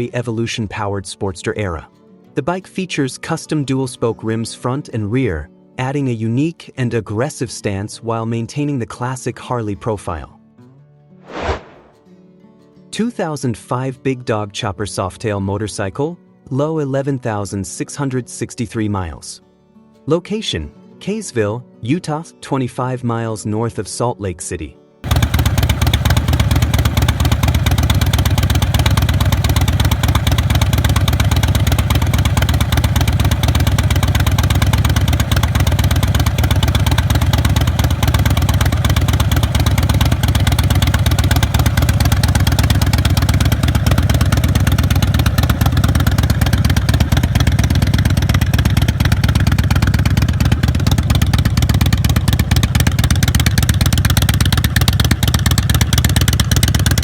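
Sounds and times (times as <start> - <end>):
motorcycle engine running: 25.1 - 57.0.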